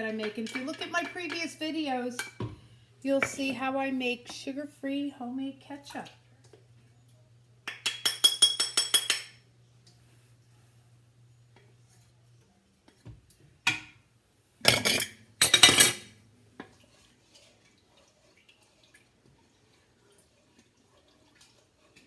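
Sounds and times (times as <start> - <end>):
utensil clattering on cookware: 0.0 - 1.6, 7.7 - 9.4, 14.6 - 16.1
spoon clinking against container: 7.7 - 9.4, 14.7 - 16.1.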